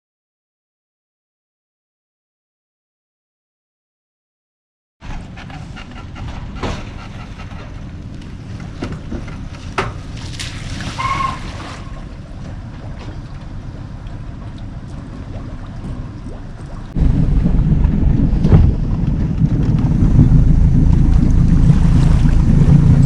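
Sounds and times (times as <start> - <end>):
boat motor rumbling: 5.0 - 23.0
water noise: 5.0 - 23.0
wind: 5.0 - 23.0.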